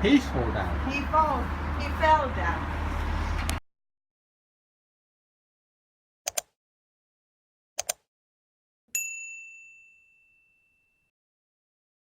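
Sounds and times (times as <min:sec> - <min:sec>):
mouse double clicks: 0:06.3 - 0:06.5, 0:07.8 - 0:08.1
bright bell ding: 0:08.9 - 0:11.1.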